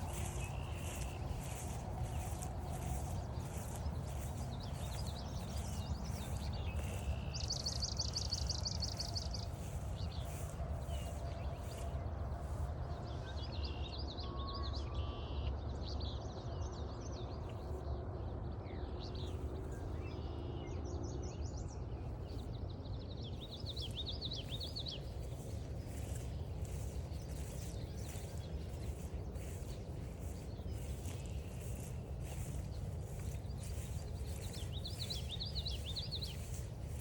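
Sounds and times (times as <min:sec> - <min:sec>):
steady low rumble: 0:00.0 - 0:13.6, 0:21.6 - 0:37.0
songbird chirping: 0:00.0 - 0:13.9, 0:23.3 - 0:37.0.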